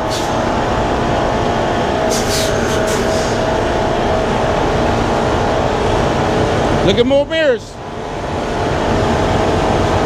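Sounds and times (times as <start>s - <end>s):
short air hisses: 0.0s - 0.4s, 2.1s - 3.4s
faint steady whine: 0.0s - 10.0s
truck diesel engine running: 0.0s - 10.0s.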